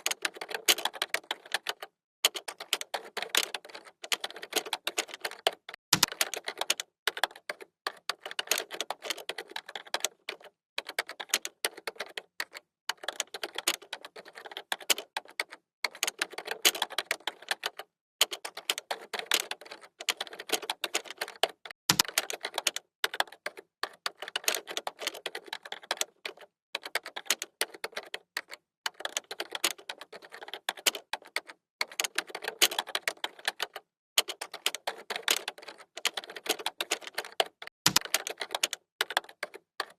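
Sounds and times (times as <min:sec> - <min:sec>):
keyboard typing clicks: 0:16.0 - 0:39.9.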